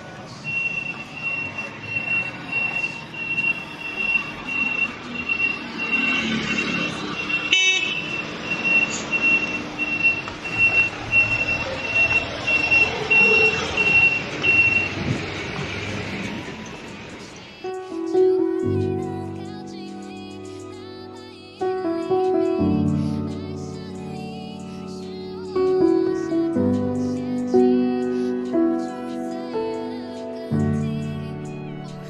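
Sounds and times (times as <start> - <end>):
vehicle reversing alarm beeping: 0.0 - 16.1.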